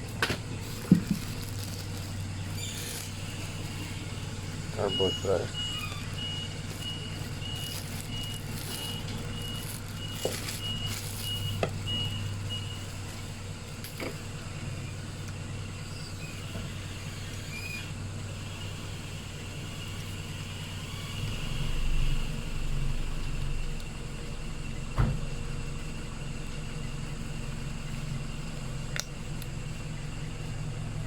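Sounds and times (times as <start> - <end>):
steady low hum: 0.0 - 31.0
short electronic beeps: 2.6 - 12.9.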